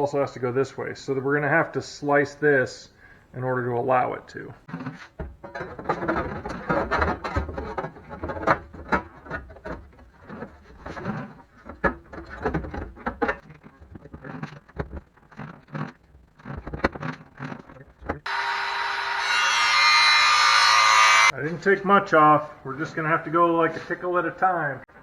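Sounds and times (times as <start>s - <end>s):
power cutting tool whine: 18.3s - 21.3s.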